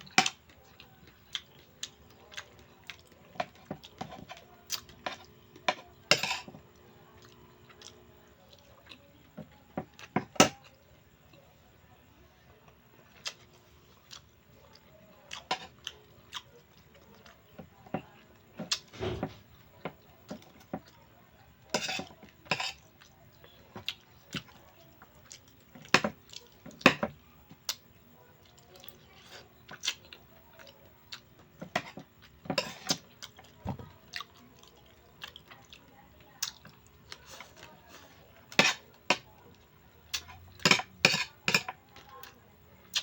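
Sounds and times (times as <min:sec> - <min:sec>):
chewing and mouth sounds: 0:00.2 - 0:05.4, 0:13.0 - 0:17.6, 0:28.4 - 0:31.3, 0:32.2 - 0:37.8
utensils clinking on plate: 0:05.0 - 0:06.6, 0:31.7 - 0:33.0.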